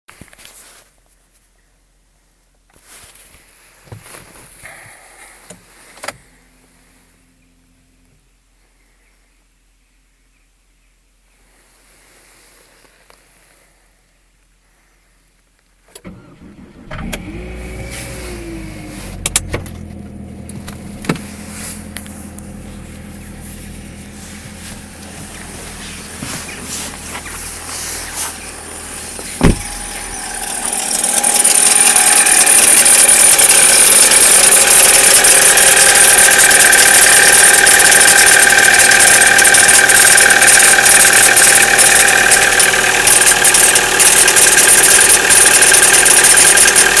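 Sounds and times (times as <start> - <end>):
car engine starting and running: 15.9 - 47.0
low hum: 16.8 - 35.9
sharp clicks: 28.3 - 47.0.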